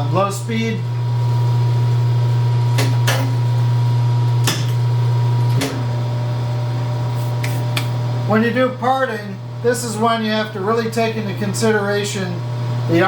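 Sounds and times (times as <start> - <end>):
lathe humming: 0.0 - 13.0.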